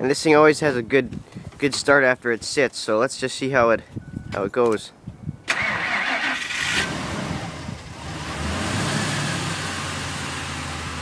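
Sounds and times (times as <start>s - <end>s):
truck starter cranking: 5.5s - 6.9s.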